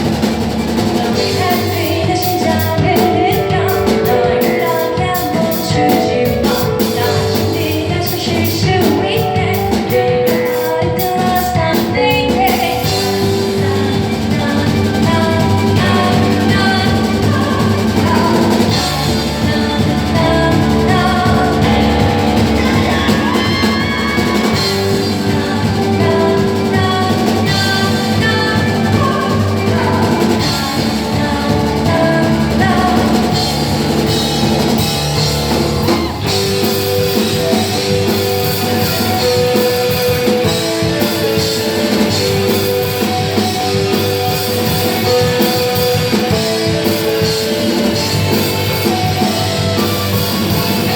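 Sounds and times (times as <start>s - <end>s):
live rock band playing: 0.0s - 50.9s
person singing: 0.7s - 50.9s.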